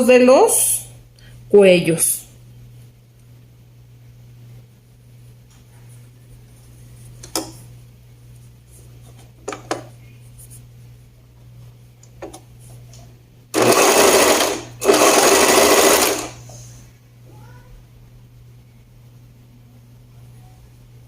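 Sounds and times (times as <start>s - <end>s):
sewing machine stitching: 13.6s - 16.4s.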